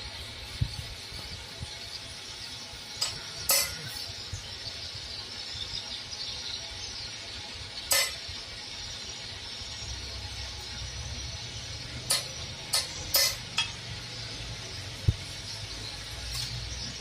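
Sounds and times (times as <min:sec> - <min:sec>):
steady high hiss: 0:00.0 - 0:17.0
metal striking metal: 0:03.0 - 0:03.9, 0:12.0 - 0:13.9.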